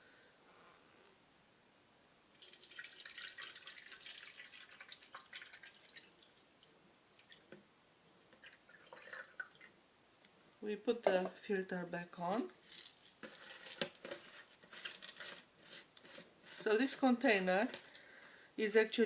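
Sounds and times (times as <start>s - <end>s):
water pouring and splashing: 2.4s - 6.6s, 8.4s - 9.7s
water dripping: 2.4s - 7.6s, 8.2s - 9.8s.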